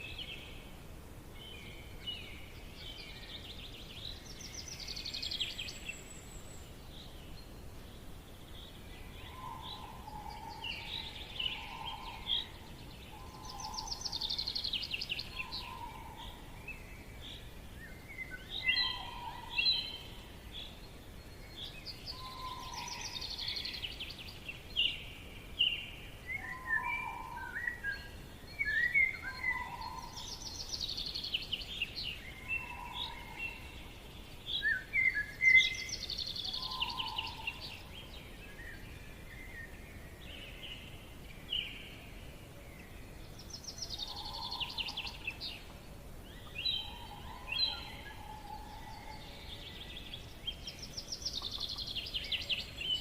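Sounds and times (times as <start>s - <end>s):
songbirds singing: 0.0s - 53.0s.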